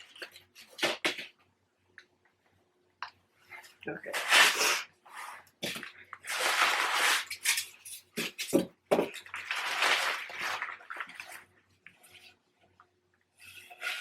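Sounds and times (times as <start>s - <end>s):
packaging rustling and crinkling: 5.6s - 12.1s.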